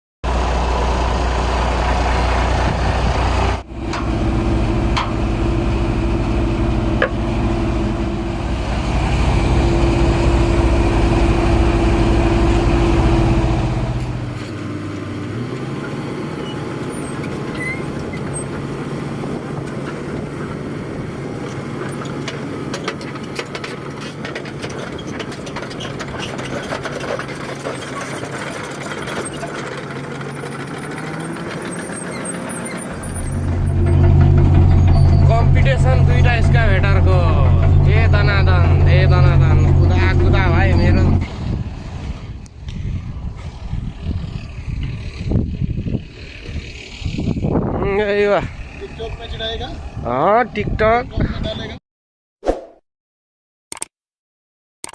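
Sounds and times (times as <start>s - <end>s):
low engine hum: 0.2s - 22.9s, 30.0s - 51.2s
heavy diesel truck engine: 0.2s - 50.5s
scattered clicks: 53.7s - 53.9s.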